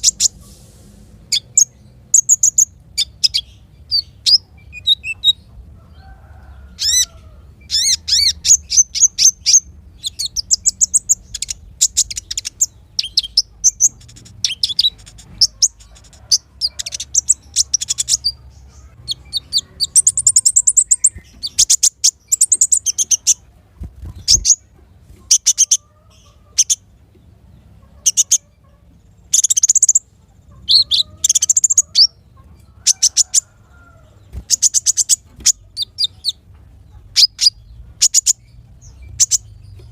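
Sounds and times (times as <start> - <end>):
small songbird chirping: 1.3 - 39.9.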